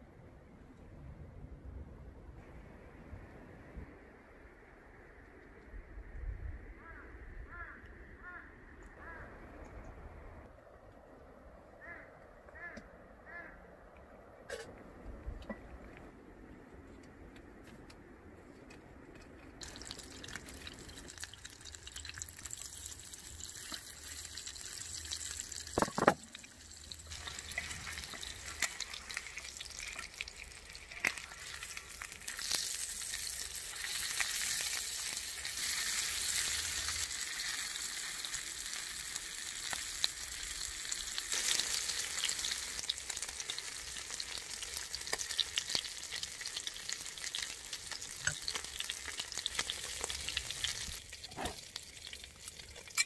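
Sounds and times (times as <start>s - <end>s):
food sizzling in a pan: 19.6s - 53.0s.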